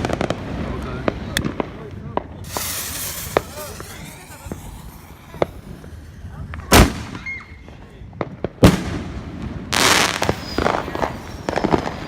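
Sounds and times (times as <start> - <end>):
crackling firework pops: 0.0 - 12.0
firework bang: 0.0 - 12.0
hissing firework burst: 2.1 - 7.8, 9.7 - 12.0.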